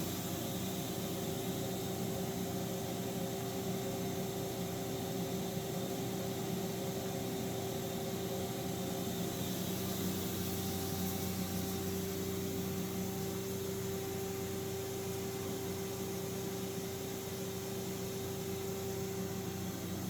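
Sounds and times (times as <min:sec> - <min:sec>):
machine humming with hiss: 0:08.2 - 0:20.0.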